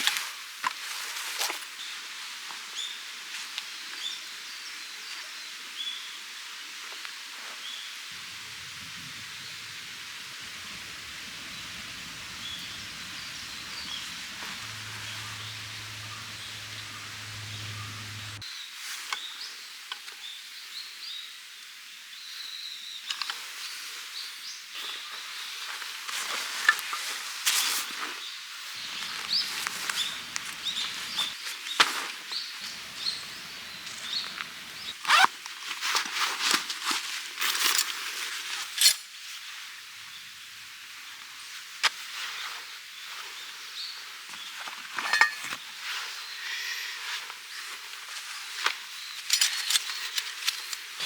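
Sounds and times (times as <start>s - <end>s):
steady outdoor hiss: 8.0s - 18.4s, 28.6s - 35.3s, 38.1s - 43.2s
short high bird calls: 8.2s - 18.4s, 28.8s - 31.4s, 32.6s - 35.2s.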